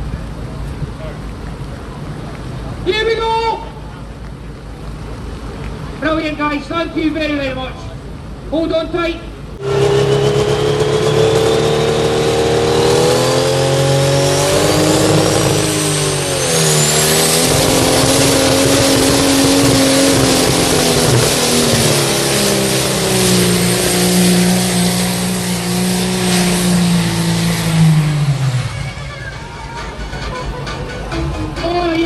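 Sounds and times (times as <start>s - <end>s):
high whine: 9.2s - 30.3s
tractor engine at full throttle: 9.4s - 30.0s.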